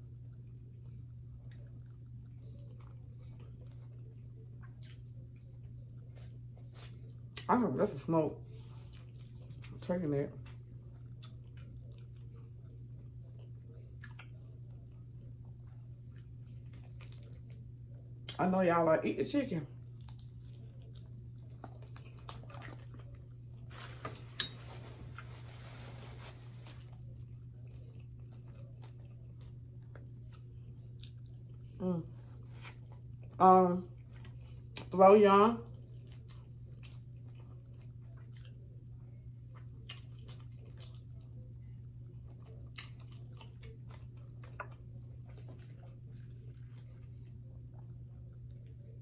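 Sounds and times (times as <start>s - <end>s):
steady low hum: 0.0s - 49.0s
chewing with wet mouth clicks: 0.2s - 7.5s, 8.6s - 18.4s, 19.8s - 23.6s, 26.8s - 35.0s, 35.7s - 49.0s
paper napkin rustling: 23.7s - 26.9s.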